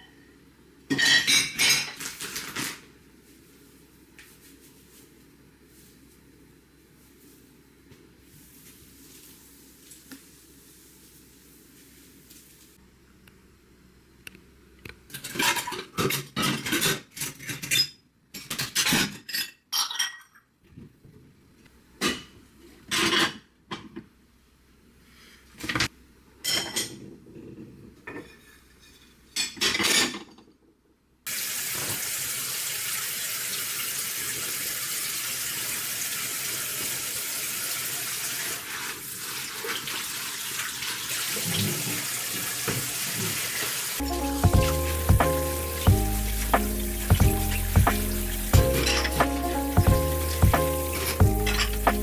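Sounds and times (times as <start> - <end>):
dishes clinking: 0.9 - 2.1, 15.2 - 20.5, 48.7 - 49.4, 50.2 - 52.0
steady hiss: 43.1 - 52.0.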